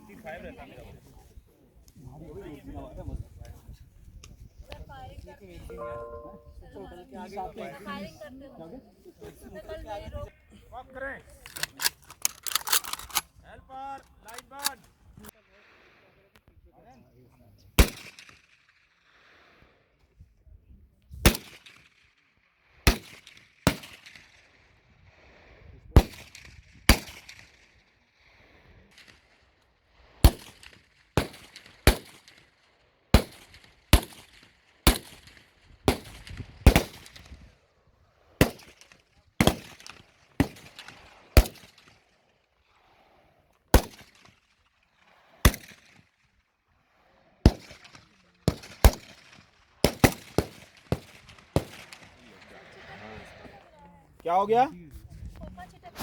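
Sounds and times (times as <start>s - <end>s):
rifle shots with echo: 17.8s - 18.4s, 33.2s - 37.3s, 38.4s - 41.9s, 43.7s - 44.3s, 45.4s - 46.0s, 47.5s - 52.5s.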